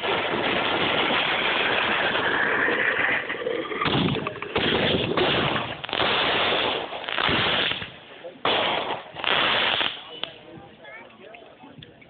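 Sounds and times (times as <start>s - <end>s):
fireworks bangs and crackling: 0.0s - 10.8s.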